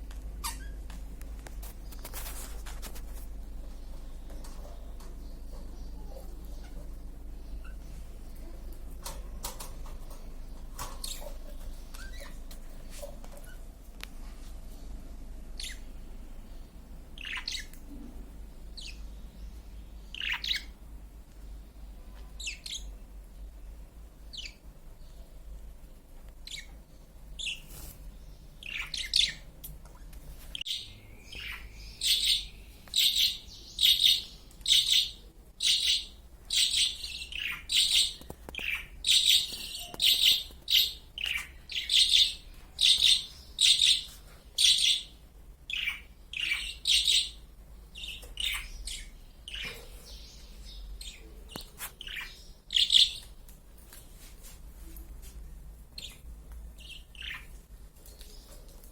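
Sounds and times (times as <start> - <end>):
small birds chirping: 0.0 - 54.2, 54.9 - 58.9.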